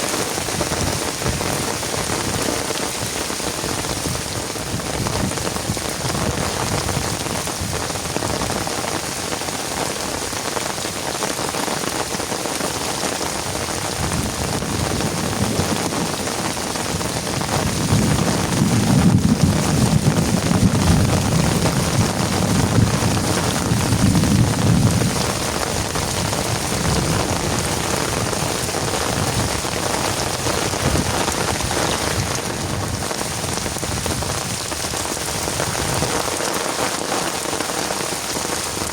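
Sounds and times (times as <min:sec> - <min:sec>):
heavy rain falling: 0:00.0 - 0:38.9
thunder rumbling: 0:13.4 - 0:38.9.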